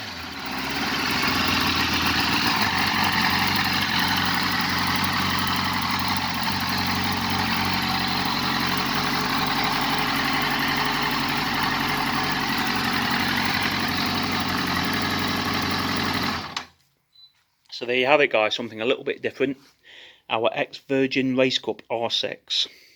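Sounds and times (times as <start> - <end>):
motorcycle engine idling: 0.0 - 16.7.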